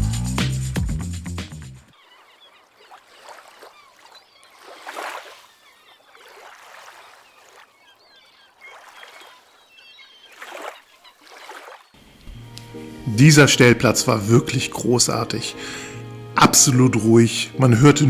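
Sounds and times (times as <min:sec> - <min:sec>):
birds chirping: 0:00.0 - 0:18.0
small waves lapping on beach: 0:01.9 - 0:13.0.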